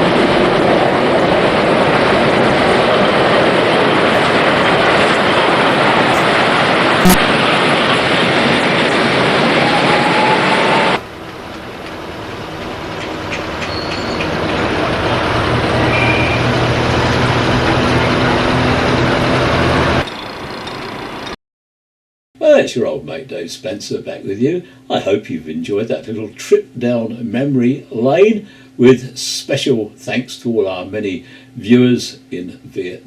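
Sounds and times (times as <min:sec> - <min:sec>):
vehicle rumble: 0:11.0 - 0:21.4.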